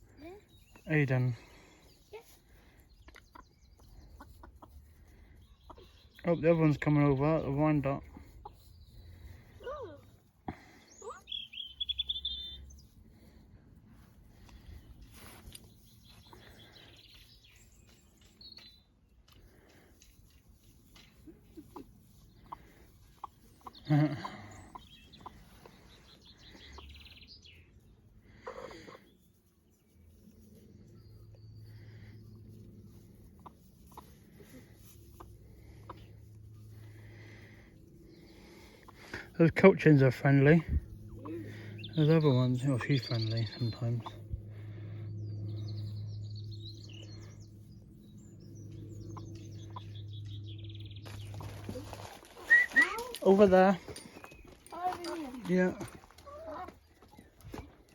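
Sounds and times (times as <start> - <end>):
chickens clucking: 0.0 - 13.1, 19.2 - 57.9
small birds chirping: 0.0 - 57.9
steady low hum: 29.6 - 52.3.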